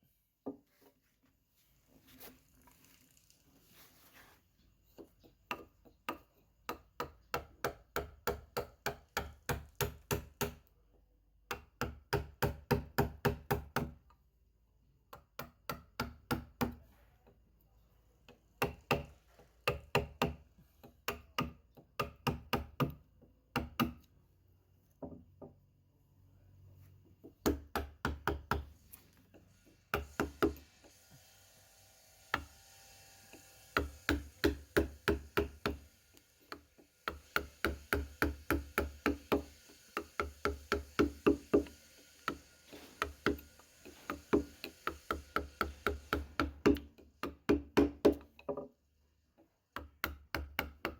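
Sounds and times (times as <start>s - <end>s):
mallet tapping chisel into wood: 5.0s - 10.7s, 11.4s - 14.0s, 18.6s - 24.1s, 27.2s - 28.7s, 29.9s - 30.6s, 33.8s - 35.8s, 36.5s - 41.7s, 43.0s - 48.7s, 49.8s - 50.9s.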